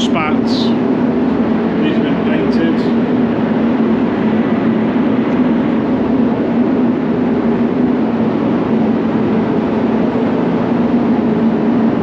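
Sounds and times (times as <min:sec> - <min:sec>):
extraction fans rushing airflow: 0:00.0 - 0:12.0
low hum: 0:00.0 - 0:12.0.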